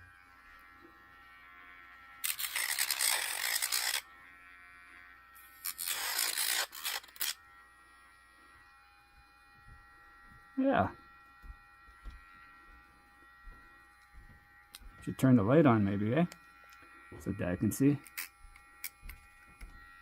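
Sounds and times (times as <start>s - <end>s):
nail grinder motor whining: 0.0s - 20.0s
grinding on dog's claw: 2.2s - 4.0s, 5.4s - 7.4s.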